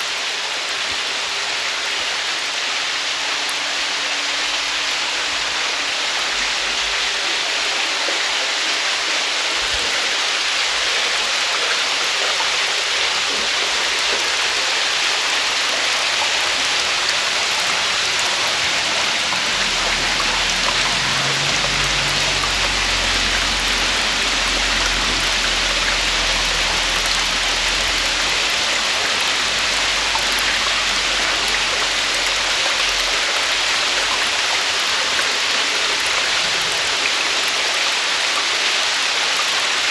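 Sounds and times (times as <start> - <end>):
waterfall splashing: 0.0 - 39.9
faint low rumble: 16.9 - 33.2.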